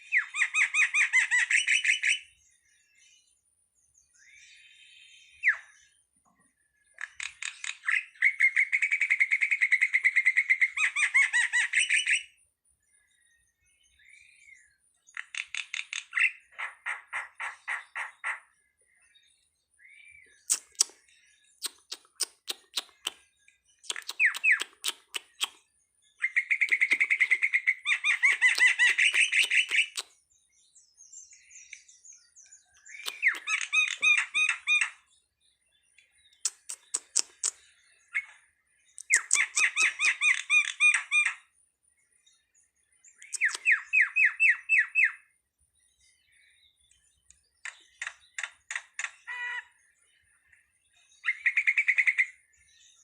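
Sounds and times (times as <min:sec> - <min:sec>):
sharp clicks: 0:20.5 - 0:21.0, 0:21.6 - 0:23.2, 0:23.8 - 0:25.6, 0:32.9 - 0:34.0, 0:36.3 - 0:37.6, 0:43.2 - 0:43.8, 0:47.3 - 0:49.2
starling chattering: 0:23.8 - 0:25.6, 0:26.5 - 0:30.0.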